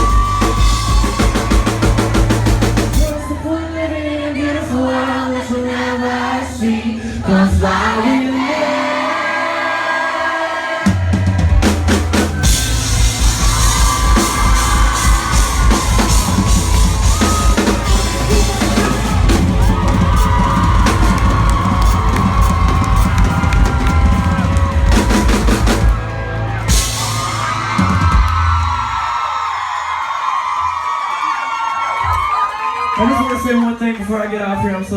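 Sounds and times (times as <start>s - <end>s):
drum kit: 0.0s - 3.2s, 10.9s - 29.0s
live pop-rock band: 0.0s - 3.4s, 10.8s - 28.8s
people singing: 3.0s - 11.0s.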